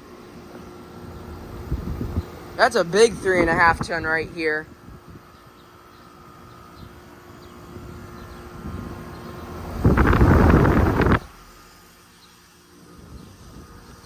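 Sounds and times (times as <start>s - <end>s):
air conditioner humming: 0.0s - 14.0s
loud rushing noise burst: 8.6s - 11.8s.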